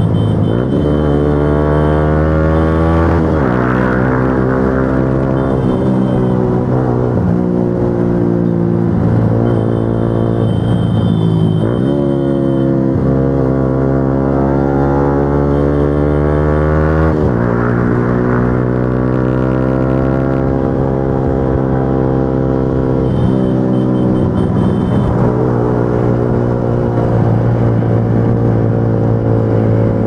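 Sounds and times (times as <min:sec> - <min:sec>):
motorcycle engine running: 0:22.8 - 0:30.0.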